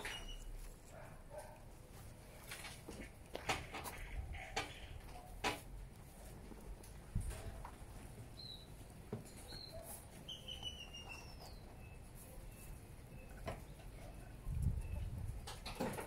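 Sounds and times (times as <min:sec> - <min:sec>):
faint high bird chirps: 0:00.0 - 0:00.6, 0:09.3 - 0:15.2.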